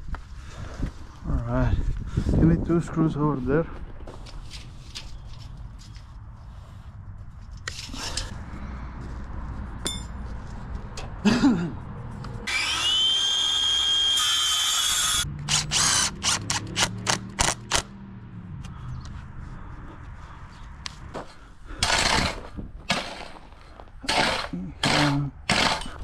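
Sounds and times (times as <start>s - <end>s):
drill motor whining: 12.5s - 16.5s
drill trigger bursts: 12.5s - 16.5s, 21.8s - 23.3s, 24.0s - 26.0s.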